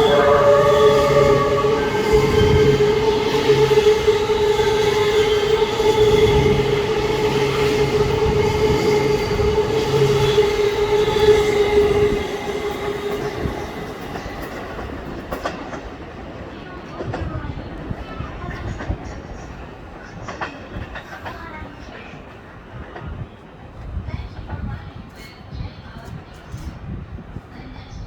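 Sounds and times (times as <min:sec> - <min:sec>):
train running rumble: 0:00.0 - 0:22.2.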